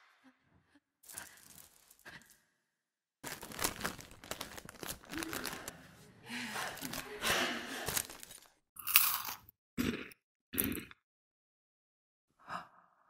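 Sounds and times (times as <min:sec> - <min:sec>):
crunching and chewing snack: 0:03.2 - 0:05.8, 0:06.7 - 0:09.5.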